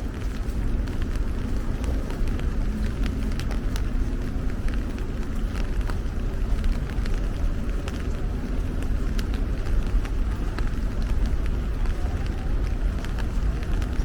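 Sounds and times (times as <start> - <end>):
rain drips ticking: 0.0 - 14.0
traffic rumble: 0.0 - 14.0.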